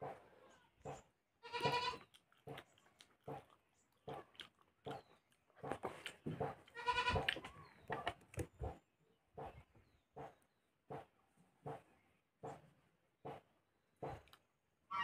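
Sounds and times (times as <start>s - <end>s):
wet chewing and lip-smacking: 1.9s - 8.8s, 14.1s - 14.5s.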